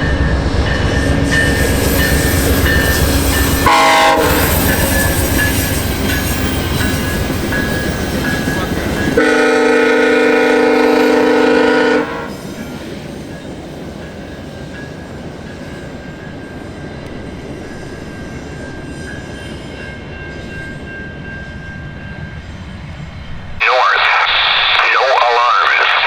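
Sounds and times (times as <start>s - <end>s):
train wheels rumbling on rail: 0.0s - 23.6s
locomotive horn chord: 3.0s - 5.3s, 9.2s - 12.5s.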